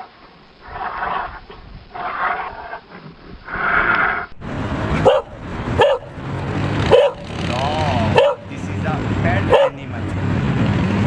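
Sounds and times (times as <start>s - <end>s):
dog barking: 5.0s - 6.2s, 6.8s - 7.3s, 8.1s - 8.5s, 9.5s - 9.9s.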